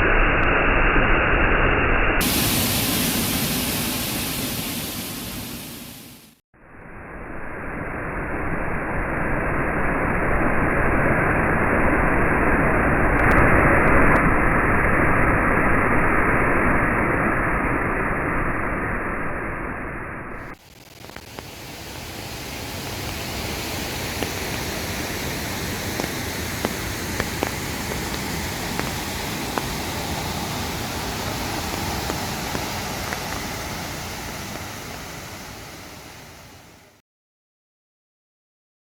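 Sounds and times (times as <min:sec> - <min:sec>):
waterfall rushing: 0:02.2 - 0:06.4, 0:20.8 - 0:37.0.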